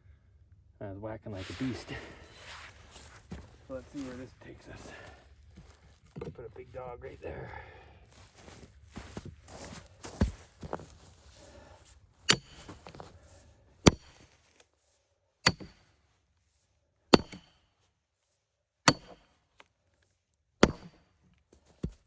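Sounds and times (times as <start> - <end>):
hammer striking steel wedge: 12.3 - 12.8, 15.5 - 15.8, 17.2 - 17.5, 18.9 - 19.2.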